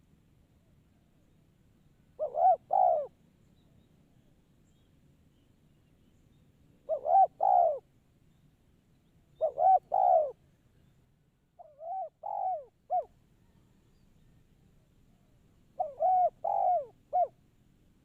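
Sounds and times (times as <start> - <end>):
dove cooing: 2.2 - 3.2, 6.8 - 7.9, 9.4 - 10.4, 11.6 - 13.5, 15.8 - 17.4.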